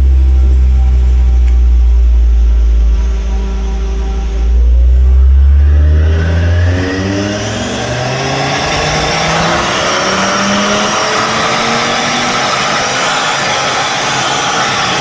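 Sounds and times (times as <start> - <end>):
deep rumble: 0.0 - 14.0
car engine accelerating: 0.0 - 15.0.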